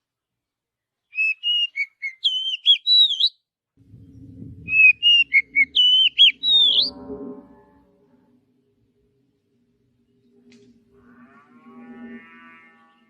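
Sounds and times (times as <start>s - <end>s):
bird whistling song: 1.1s - 3.4s, 4.7s - 7.0s
faint low noise: 3.8s - 12.8s.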